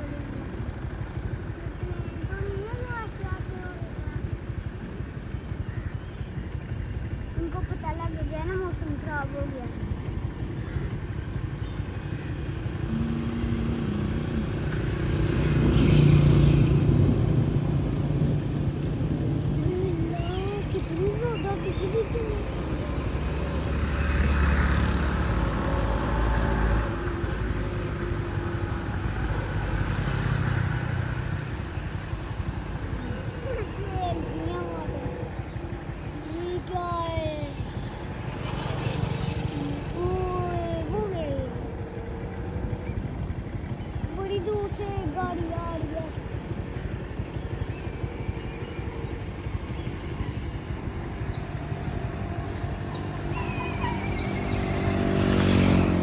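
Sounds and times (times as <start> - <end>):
vehicle passing: 11.4 - 56.0.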